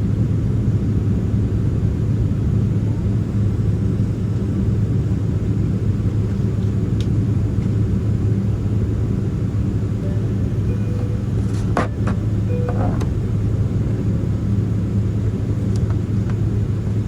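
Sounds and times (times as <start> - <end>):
jet engines idling in cabin: 0.0 - 17.0.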